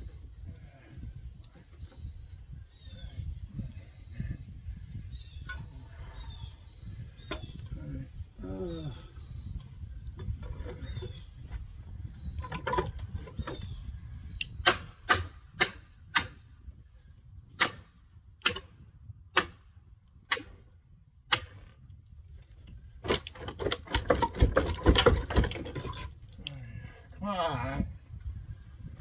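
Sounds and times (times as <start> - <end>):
low scraping and handling: 5.3 - 14.9, 22.4 - 28.0.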